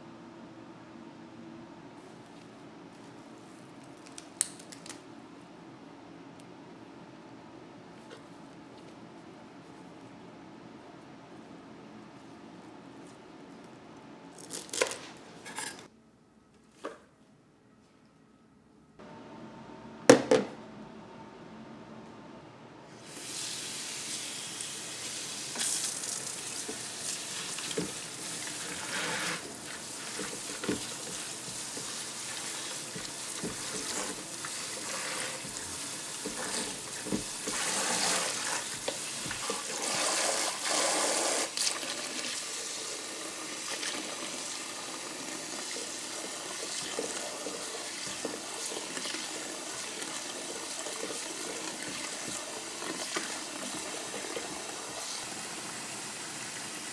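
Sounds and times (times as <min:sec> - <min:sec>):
tap water running into sink: 0:23.1 - 0:56.9.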